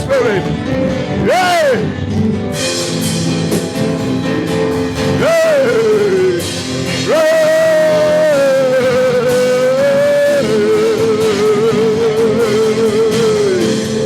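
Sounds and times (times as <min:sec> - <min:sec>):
church worship music: 0:00.0 - 0:14.0
person praying: 0:05.2 - 0:14.0.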